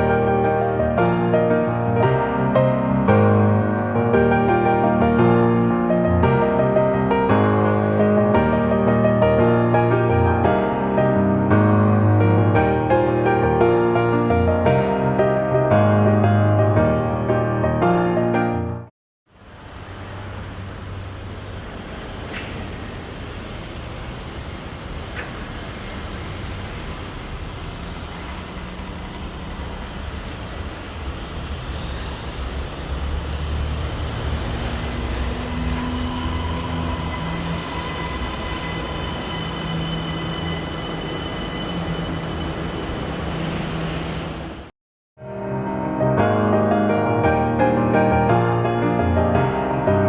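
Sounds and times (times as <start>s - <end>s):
train wheels rumbling on rail: 19.3s - 44.7s.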